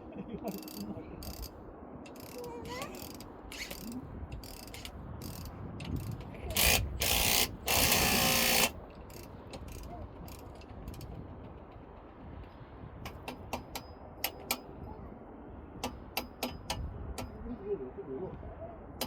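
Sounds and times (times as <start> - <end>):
ratchet clatter: 2.1 - 11.2.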